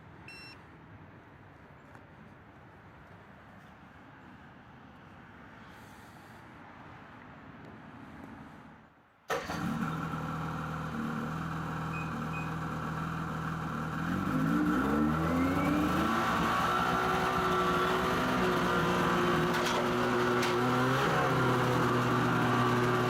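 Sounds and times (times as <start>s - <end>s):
snowmobile engine running: 12.9s - 23.0s.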